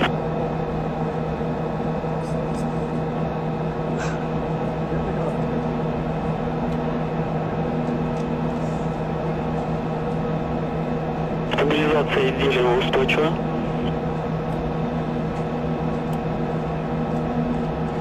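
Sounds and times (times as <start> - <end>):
radio channel hiss and hum: 11.4 - 14.0.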